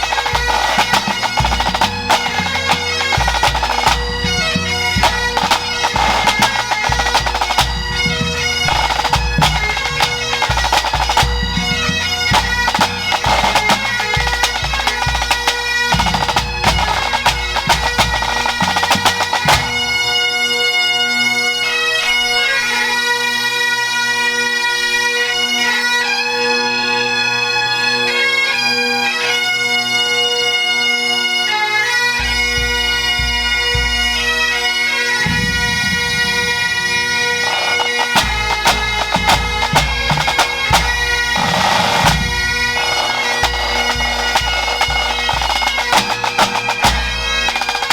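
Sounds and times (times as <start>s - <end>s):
rattling drum corps: 0.0s - 20.3s, 35.2s - 47.9s
bagpipes playing: 0.0s - 47.9s.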